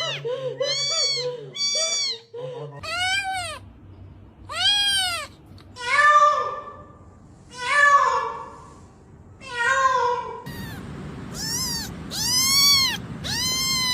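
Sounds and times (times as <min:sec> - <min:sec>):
kitten meowing: 0:00.0 - 0:02.2, 0:04.5 - 0:05.4, 0:10.5 - 0:13.9.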